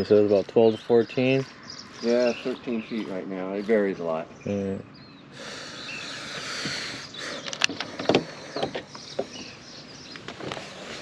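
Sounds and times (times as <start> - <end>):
clicks and knocks in boat: 7.5 - 9.6.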